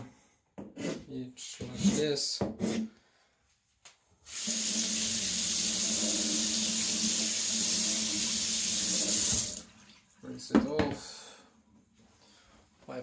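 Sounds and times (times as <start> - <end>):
tap water running into a sink: 4.3 - 10.2.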